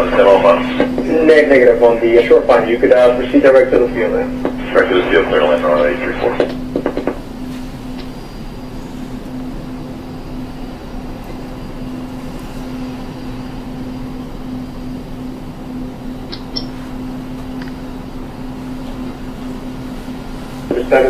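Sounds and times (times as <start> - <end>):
engine drone: 0.0 - 21.0.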